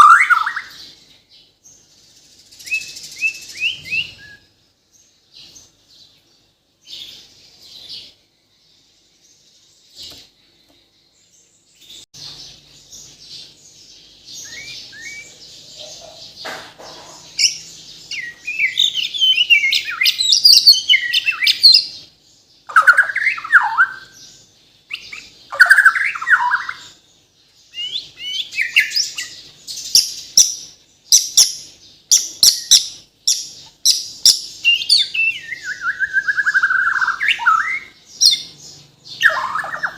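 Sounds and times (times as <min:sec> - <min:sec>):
bird singing whistled phrases: 0:00.0 - 0:00.8, 0:02.6 - 0:04.6, 0:14.4 - 0:15.4, 0:18.1 - 0:21.8, 0:22.7 - 0:24.2, 0:24.9 - 0:26.9, 0:27.7 - 0:29.3, 0:34.2 - 0:38.5, 0:39.2 - 0:39.9.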